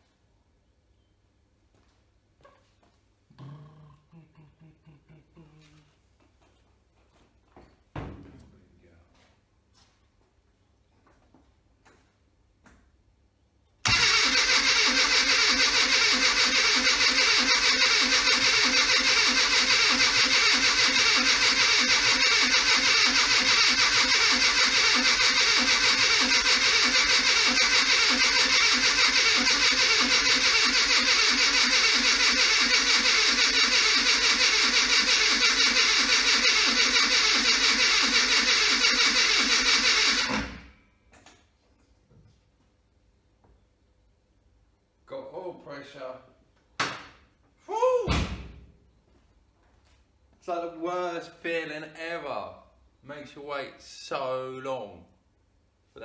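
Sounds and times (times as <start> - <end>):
engine cranking on starter motor: 13.8 - 40.8.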